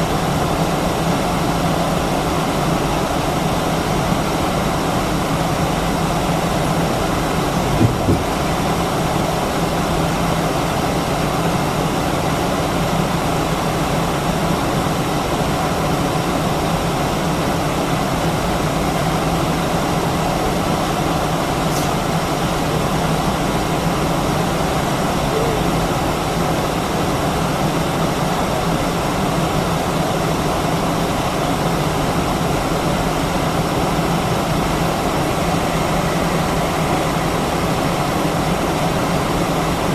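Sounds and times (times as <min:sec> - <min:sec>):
airplane cabin engine hum: 0:04.7 - 0:10.0
brief knock: 0:07.7 - 0:08.4.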